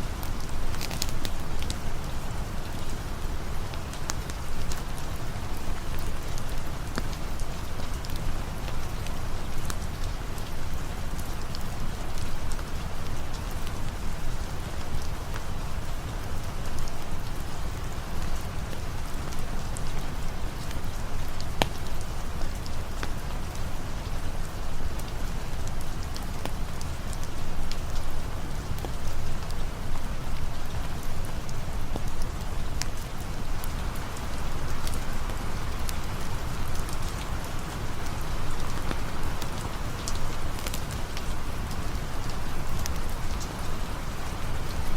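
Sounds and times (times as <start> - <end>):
rain falling: 0.0 - 44.9
campfire pops and crackles: 0.1 - 3.0, 3.6 - 10.6, 18.2 - 23.4, 24.8 - 44.9.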